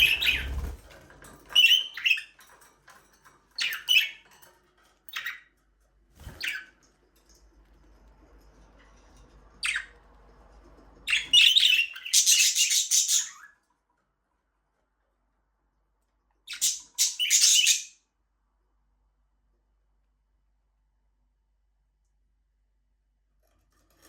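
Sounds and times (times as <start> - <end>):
budgerigars chirping: 0.0 - 0.6, 11.1 - 13.5, 16.5 - 17.9.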